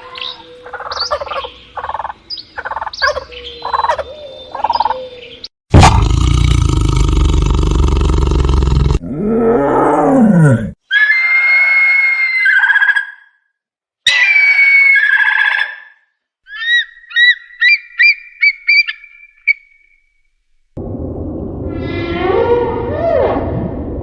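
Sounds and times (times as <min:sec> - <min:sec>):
animal roar: 0:05.7 - 0:10.8
long high steady animal calls: 0:10.8 - 0:13.4, 0:14.1 - 0:20.1.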